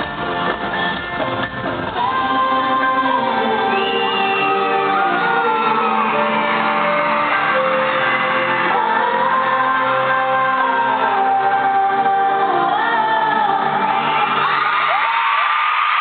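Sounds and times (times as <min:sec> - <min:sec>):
live pop music with singing: 0:00.0 - 0:16.0
audience shouting and whooping: 0:03.5 - 0:11.1, 0:13.6 - 0:16.0.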